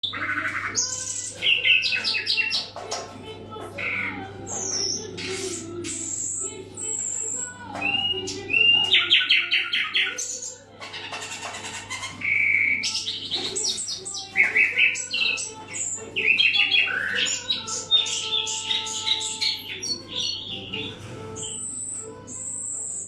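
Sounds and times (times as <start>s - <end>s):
nightingale singing: 11.3s - 22.8s.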